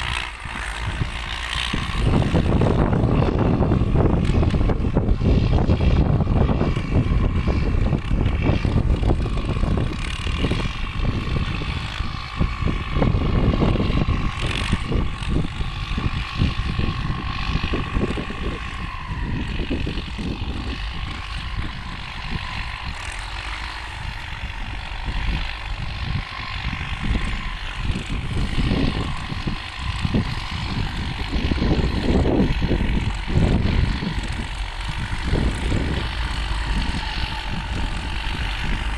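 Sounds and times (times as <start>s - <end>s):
tractor engine running: 0.0s - 38.9s
high whine: 23.9s - 38.9s.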